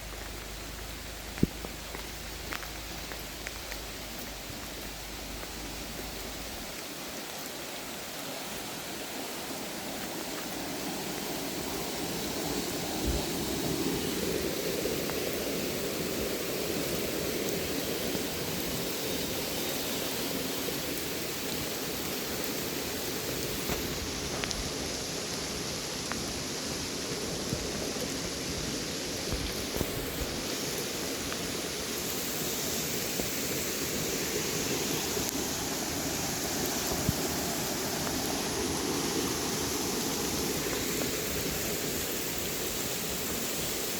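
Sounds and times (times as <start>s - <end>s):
single raindrops ticking: 0.0s - 7.5s
rain hiss: 0.0s - 43.9s.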